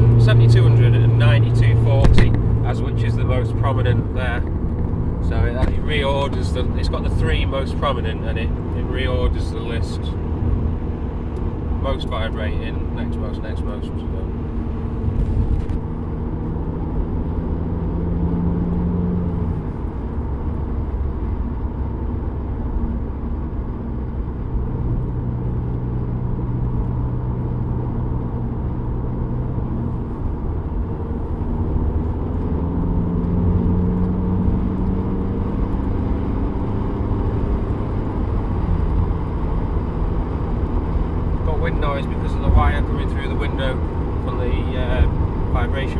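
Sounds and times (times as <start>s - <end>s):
low humming vibration: 0.0s - 11.8s
car engine and road rumble: 0.0s - 45.9s.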